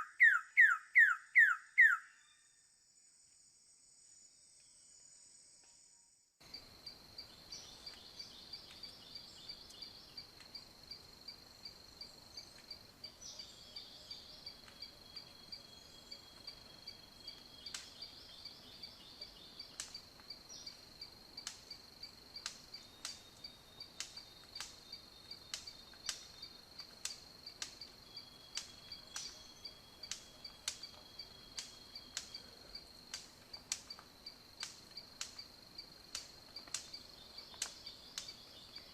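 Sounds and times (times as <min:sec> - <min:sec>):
insects pulsing trill: 0:00.0 - 0:38.9
sharp clicks: 0:33.1 - 0:35.5.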